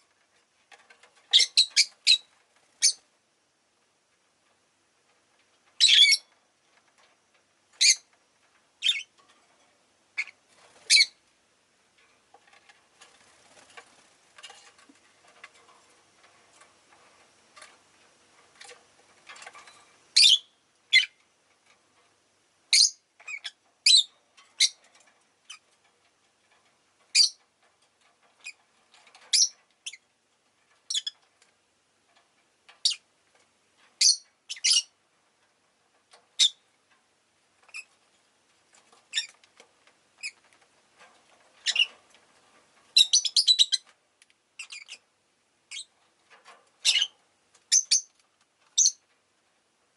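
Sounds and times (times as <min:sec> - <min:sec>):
lovebirds chirping: 0:01.3 - 0:03.0, 0:05.8 - 0:06.3, 0:08.8 - 0:09.1, 0:10.2 - 0:11.2, 0:20.2 - 0:21.2, 0:22.7 - 0:24.8, 0:27.1 - 0:27.4, 0:34.0 - 0:34.9, 0:41.6 - 0:41.9, 0:43.0 - 0:43.8, 0:44.6 - 0:45.0, 0:46.8 - 0:47.1, 0:47.7 - 0:48.1, 0:48.8 - 0:49.0.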